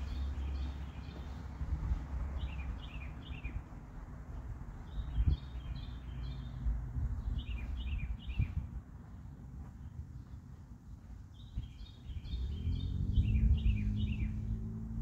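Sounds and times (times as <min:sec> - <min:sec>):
small bird chirping: 0:07.2 - 0:08.6, 0:09.8 - 0:14.6
low outdoor rumble: 0:12.0 - 0:15.0.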